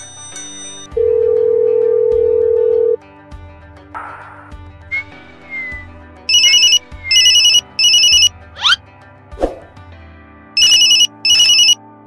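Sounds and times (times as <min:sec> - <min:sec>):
trilling phone ringtone: 0:00.0 - 0:03.0, 0:06.3 - 0:08.8, 0:10.6 - 0:11.8
background music: 0:00.0 - 0:12.0.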